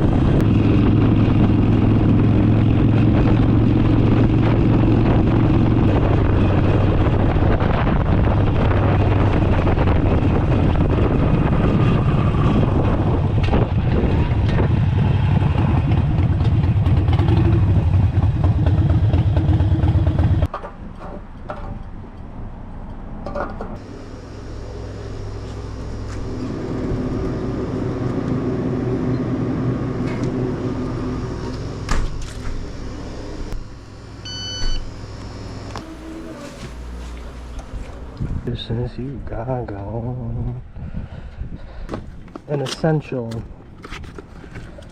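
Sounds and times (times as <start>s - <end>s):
motorcycle engine idling: 15.2s - 20.5s.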